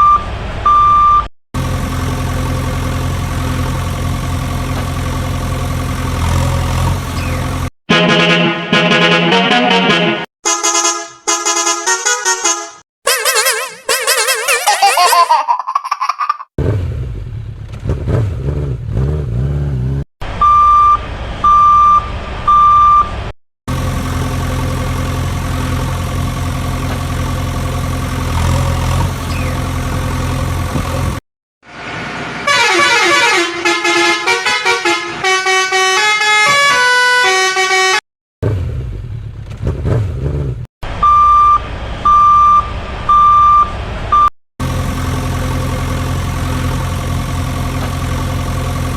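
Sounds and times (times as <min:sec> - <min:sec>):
short horn beeps: 0:10.4 - 0:14.5
cartoon engine drone: 0:13.1 - 0:15.5.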